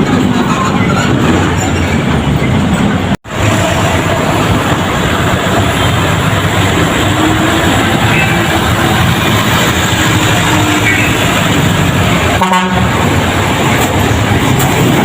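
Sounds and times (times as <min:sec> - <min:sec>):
heavy vehicles passing close: 0:00.0 - 0:15.0.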